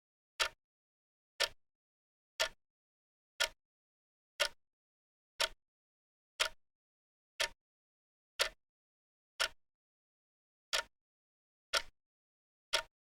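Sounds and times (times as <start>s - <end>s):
clock ticking: 11.7s - 11.9s, 12.7s - 12.9s.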